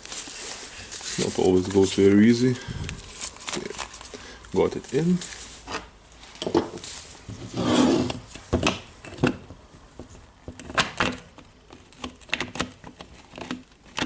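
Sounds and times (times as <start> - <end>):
scrape of tool parts: 6.8 - 8.3
clicks and knocks of parts: 10.4 - 14.0.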